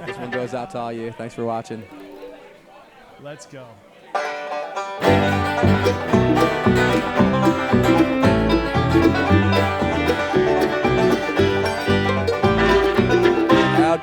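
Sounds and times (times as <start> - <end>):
banjo picking: 0.0 - 2.9, 4.1 - 14.0
guitar picking: 4.2 - 14.0
bass line: 5.0 - 14.0.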